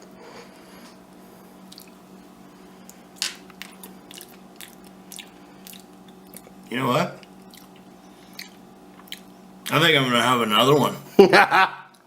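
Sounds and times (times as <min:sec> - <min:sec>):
person chewing crunchy food: 0:01.6 - 0:02.0, 0:02.8 - 0:09.7.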